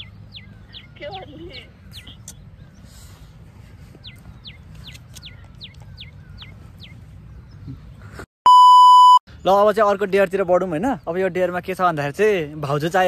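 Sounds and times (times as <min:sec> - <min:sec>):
bird chirping: 0:00.0 - 0:08.2
loud electronic beep tone: 0:08.5 - 0:09.2.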